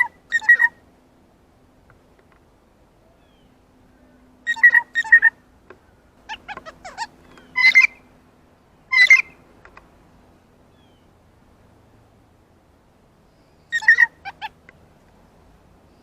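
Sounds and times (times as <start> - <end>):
bird hooting and screeching calls: 0.0 - 0.8, 3.0 - 5.4, 6.2 - 8.1, 8.9 - 9.4, 13.6 - 14.6
faint steady hum: 0.0 - 16.0.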